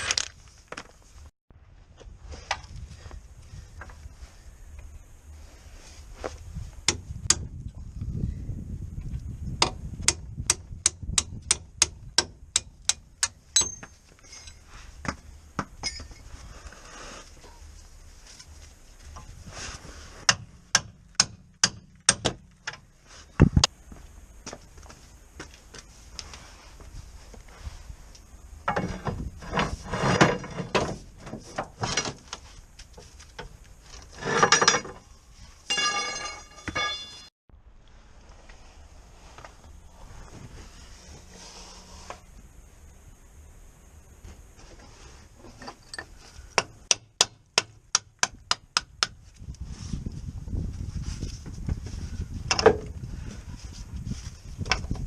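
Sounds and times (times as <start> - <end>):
metallic knocks and tool clatter: 13.2 - 15.2, 15.8 - 16.3, 28.7 - 32.3, 34.1 - 35.1, 35.7 - 37.3, 45.4 - 46.7
ringing metal tone: 13.5 - 14.7, 15.8 - 16.3, 35.7 - 37.3.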